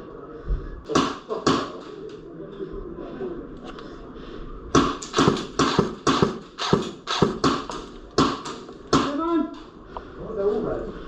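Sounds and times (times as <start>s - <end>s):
airsoft gunshots cracking: 0.9s - 1.8s, 4.8s - 9.2s.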